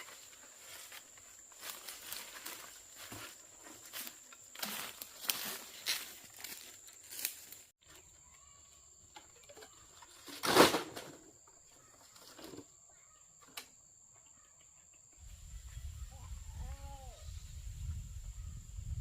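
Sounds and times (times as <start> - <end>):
farmyard animals and birds: 7.8 - 10.4, 11.2 - 17.4.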